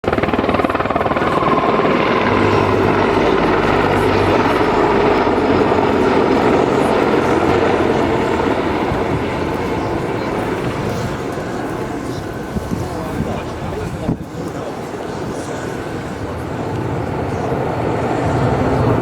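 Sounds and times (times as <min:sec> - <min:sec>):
helicopter rotor beating: 0:00.0 - 0:19.0
turbine engines rushing: 0:00.0 - 0:19.0.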